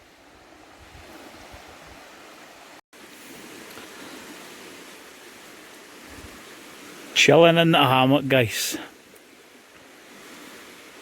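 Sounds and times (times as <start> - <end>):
waves washing on rocky beach: 3.0 - 11.0.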